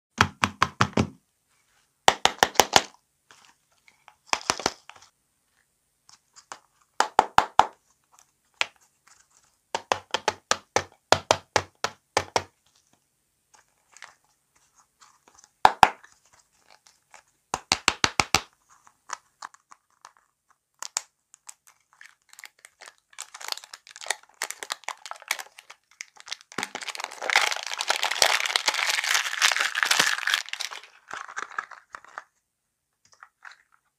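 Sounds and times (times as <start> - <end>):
fingernails tapping plastic balls: 2.1 - 2.9, 6.5 - 7.8, 9.7 - 12.5, 17.5 - 18.5
plastic wrapper crinkling and tearing: 18.7 - 32.4, 33.1 - 33.9.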